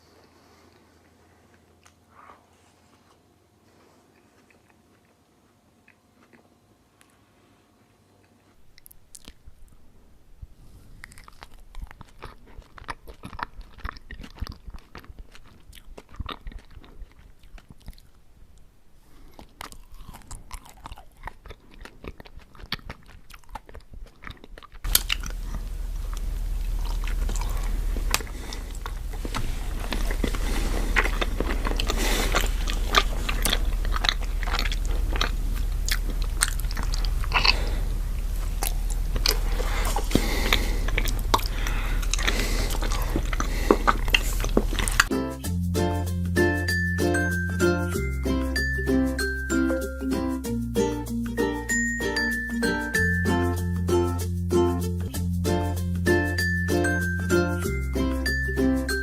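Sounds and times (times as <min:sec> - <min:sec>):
chewing ice cream sandwiches: 0:00.1 - 0:07.4, 0:08.1 - 0:09.8, 0:10.7 - 0:59.0
wet mouth clicks: 0:19.2 - 0:45.1
steady low hum: 0:24.9 - 0:59.0.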